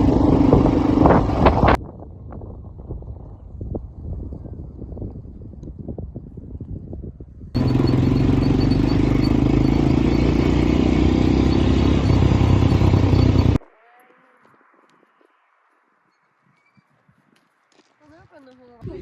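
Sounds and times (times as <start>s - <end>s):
dune buggy engine running: 0.0s - 1.8s, 7.6s - 13.6s
low wind rumble on microphone: 0.0s - 8.1s, 18.8s - 19.0s.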